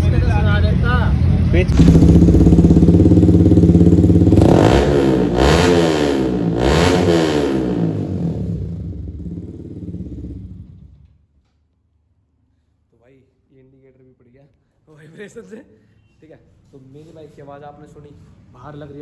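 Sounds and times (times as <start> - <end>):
motorcycle engine idling and revving: 0.4 - 11.2.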